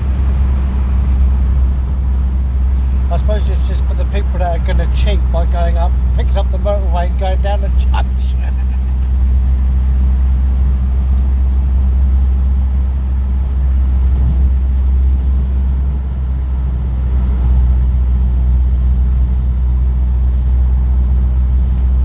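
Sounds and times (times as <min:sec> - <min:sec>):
car engine drone: 0:00.0 - 0:22.0
road noise inside car: 0:00.0 - 0:22.0.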